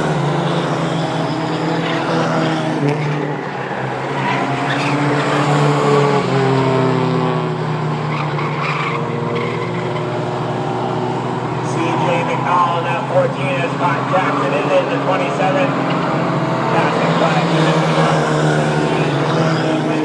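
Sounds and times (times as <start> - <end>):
racing truck engines: 0.0 - 20.0.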